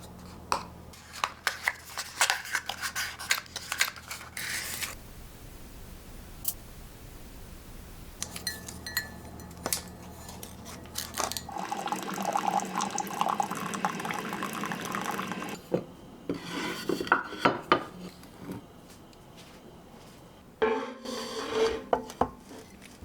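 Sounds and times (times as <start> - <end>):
dishes and utensils clinking: 8.2 - 12.6
running water: 11.5 - 15.6.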